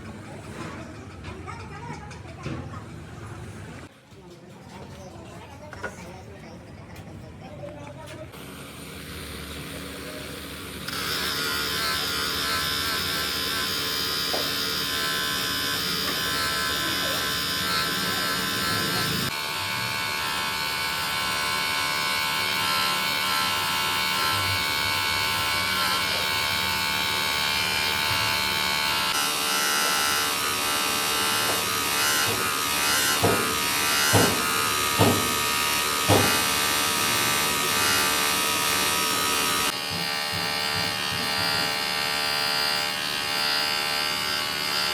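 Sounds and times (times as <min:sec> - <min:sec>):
workshop machinery buzzing: 0:08.2 - 0:44.9
sharp knocks: 0:33.1 - 0:35.4, 0:36.0 - 0:36.4.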